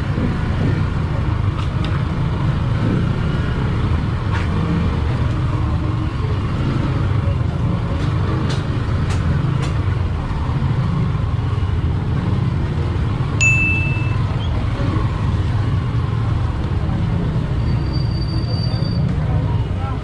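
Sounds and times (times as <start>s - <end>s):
motorcycle engine rumble: 0.0s - 20.0s
short high beep: 13.4s - 14.4s.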